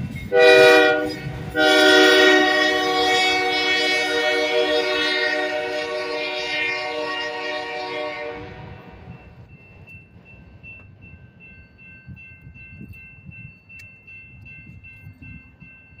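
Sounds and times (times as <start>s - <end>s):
passing train rumble: 0.0s - 16.0s
locomotive air horn: 0.3s - 9.0s.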